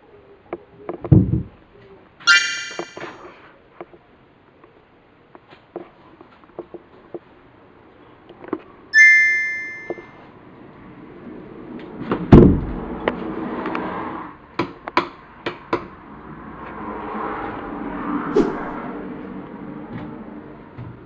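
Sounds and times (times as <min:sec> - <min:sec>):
bright ringing ding: 0:02.3 - 0:03.1, 0:09.0 - 0:10.1.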